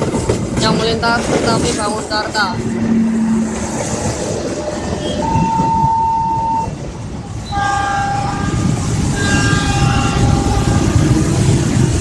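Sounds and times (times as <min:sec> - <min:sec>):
train rumbling past: 0:00.0 - 0:12.0
train horn blasts: 0:04.9 - 0:06.7, 0:07.4 - 0:11.6.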